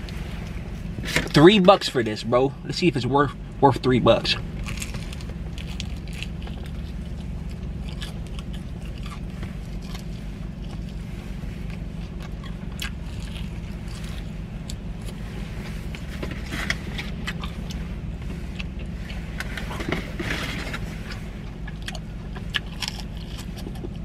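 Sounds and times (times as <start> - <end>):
low hum: 0.0 - 24.0
person chewing chicken wing: 4.6 - 11.0, 11.7 - 15.2, 21.4 - 24.0.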